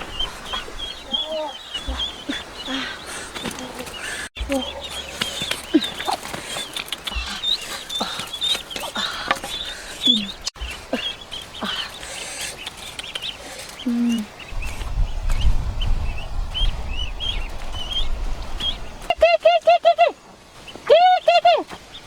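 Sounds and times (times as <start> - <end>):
birds chirping in high peeps: 0.0 - 19.3
lower bird call: 0.0 - 20.2
low rumble: 14.5 - 19.0.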